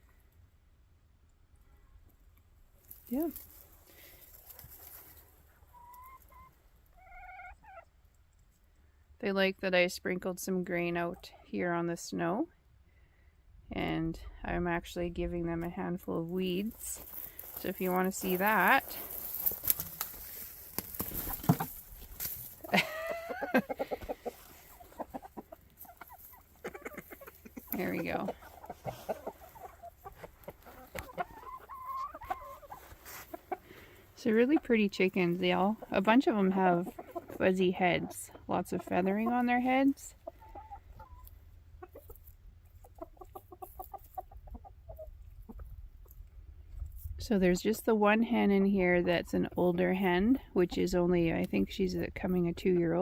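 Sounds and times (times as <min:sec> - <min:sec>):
chicken rustling and clicks: 0:02.1 - 0:08.6, 0:16.7 - 0:38.1, 0:40.2 - 0:47.1
chickens clucking: 0:03.2 - 0:08.6, 0:16.8 - 0:46.4, 0:48.8 - 0:53.0
chicken drawn-out call: 0:05.5 - 0:07.9, 0:22.6 - 0:34.2.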